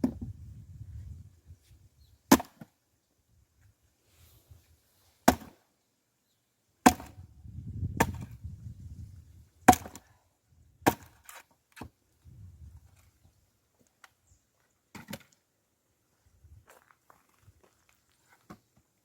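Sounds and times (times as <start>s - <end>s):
axe chopping wood: 2.3s - 2.7s, 5.2s - 5.6s, 6.8s - 7.2s, 8.0s - 8.4s, 9.7s - 10.1s, 10.8s - 11.9s.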